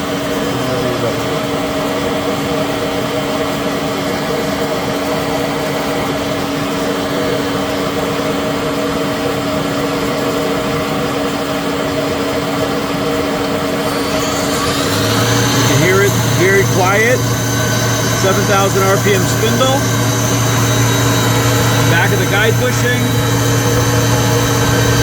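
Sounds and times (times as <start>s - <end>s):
lathe spindle humming: 12.4s - 25.0s.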